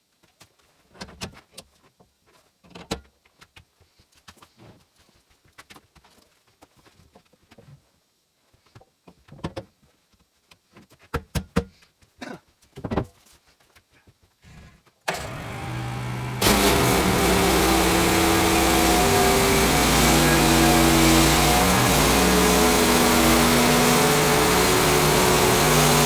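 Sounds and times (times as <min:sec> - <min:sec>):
sawmill petrol engine running: 0:15.1 - 0:26.0.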